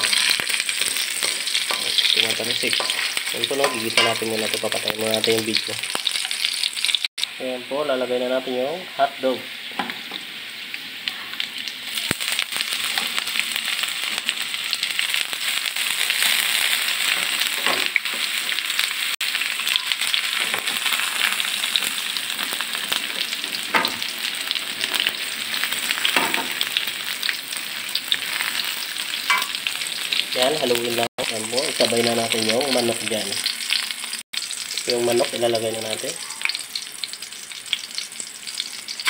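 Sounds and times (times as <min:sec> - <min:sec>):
spoon scraping wok: 0:00.0 - 0:04.7, 0:28.1 - 0:30.2
food sizzling in hot oil: 0:00.0 - 0:39.0.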